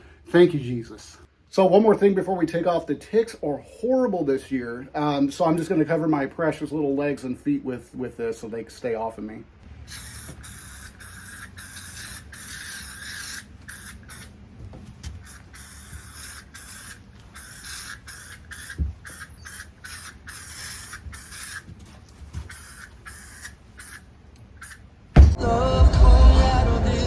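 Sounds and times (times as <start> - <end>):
spray can hissing in bursts: 9.8 - 14.4, 15.2 - 21.7, 22.4 - 24.0, 24.6 - 24.8
thump: 25.2 - 25.4.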